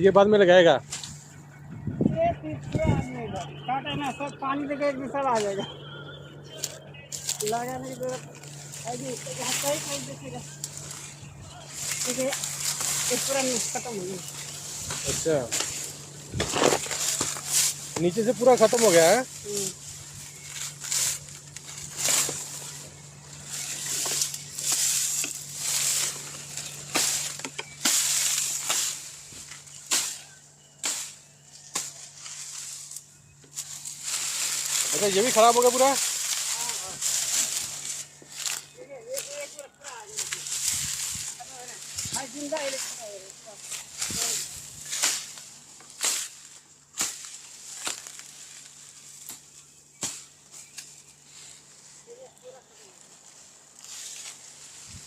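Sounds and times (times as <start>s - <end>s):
dry leaves rustling: 0.0s - 55.0s.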